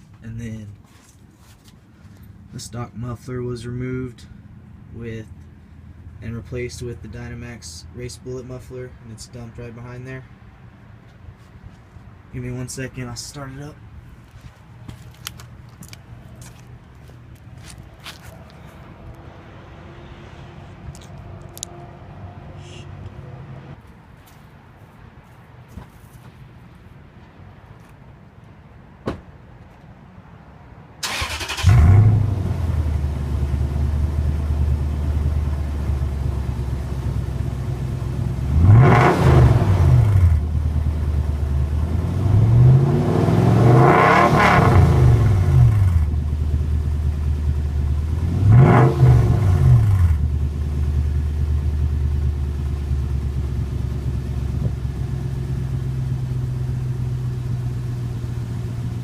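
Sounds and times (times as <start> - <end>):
engine revving: 31.0 - 36.0, 38.2 - 47.1, 48.0 - 50.5
truck engine cranking and idling: 31.0 - 43.8, 44.6 - 59.0.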